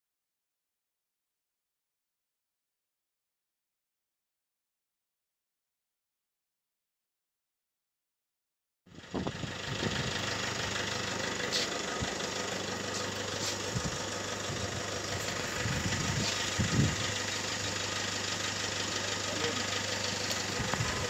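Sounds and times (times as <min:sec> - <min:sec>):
car engine idling: 0:08.9 - 0:21.0.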